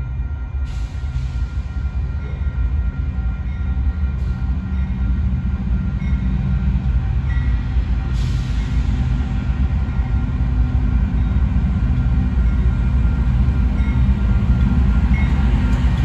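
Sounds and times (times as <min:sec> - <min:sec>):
train rumbling by: 0:00.0 - 0:16.0.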